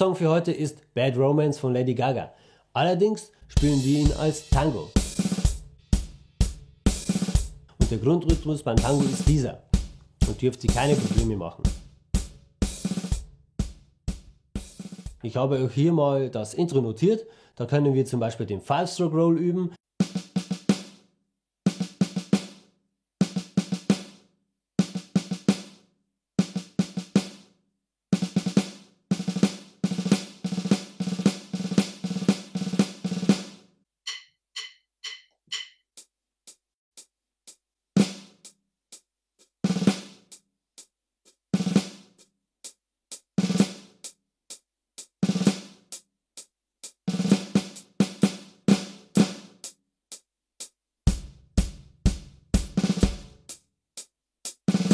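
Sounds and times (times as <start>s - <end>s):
snare drum rolls: 3.6s - 6.2s, 6.9s - 15.2s, 28.2s - 35.7s, 43.4s - 43.9s, 47.1s - 49.6s, 51.1s - 53.5s.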